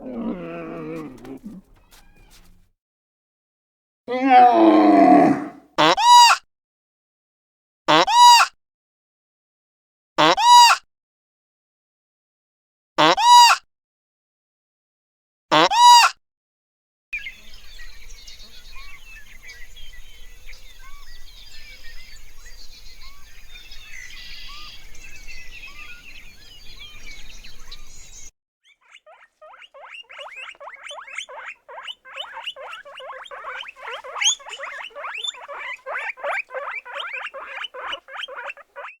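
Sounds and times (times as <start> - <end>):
rapid chirping calls: 0.0 - 2.5, 23.0 - 39.0
high chirps: 28.8 - 39.0.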